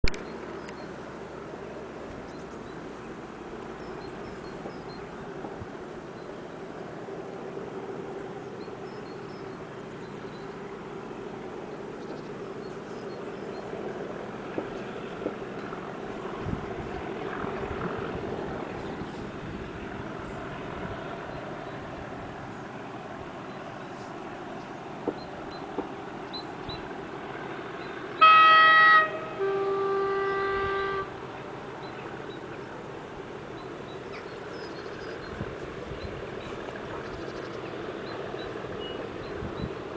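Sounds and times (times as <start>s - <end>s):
distant diesel locomotives droning: 0.0s - 39.9s
background rumble: 0.1s - 28.2s
two-tone railway horn: 28.2s - 31.4s.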